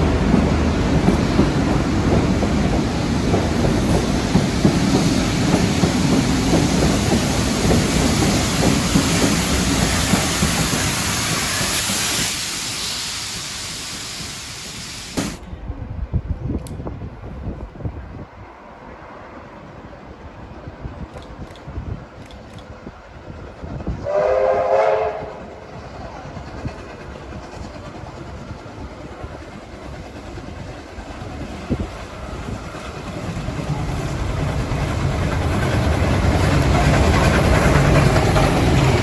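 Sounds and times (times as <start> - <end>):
train passing: 0.0 - 39.0
high hiss: 5.0 - 15.4.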